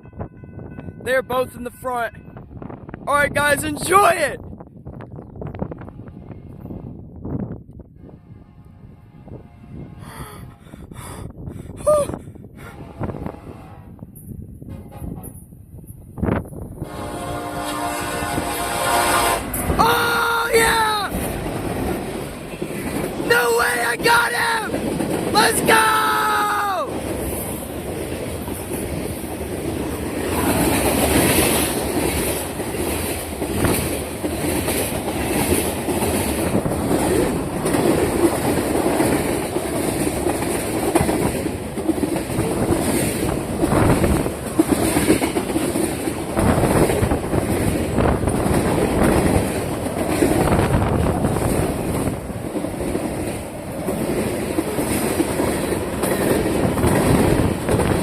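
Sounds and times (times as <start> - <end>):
train rumble: 0.0 - 58.0
freight train wheels clacking: 16.8 - 58.0.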